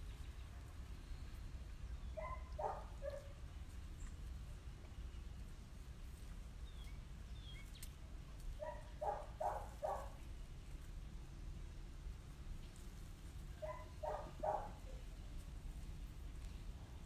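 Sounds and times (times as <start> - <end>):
steady low rumble: 0.0 - 17.0
birds calling: 13.6 - 15.1.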